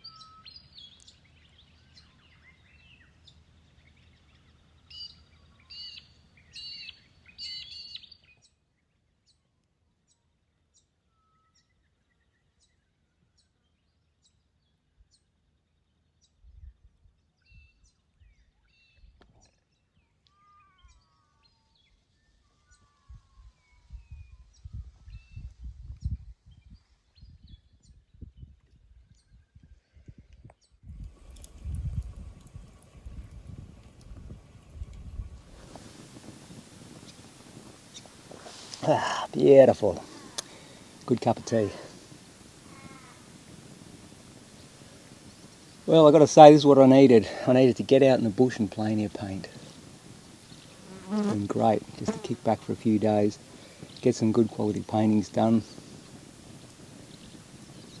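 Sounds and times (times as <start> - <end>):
birds chirping and whistling: 35.6 - 50.9, 52.8 - 58.0
high ticking bird call: 35.6 - 58.0.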